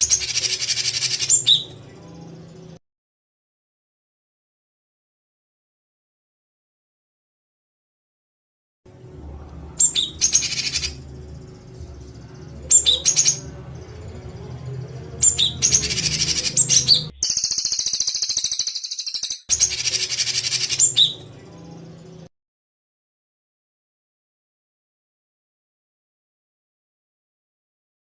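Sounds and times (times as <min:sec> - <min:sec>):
songbird harsh rapid trills: 0:00.0 - 0:01.7, 0:09.8 - 0:11.0, 0:15.2 - 0:21.2
faint low hum: 0:08.9 - 0:17.0.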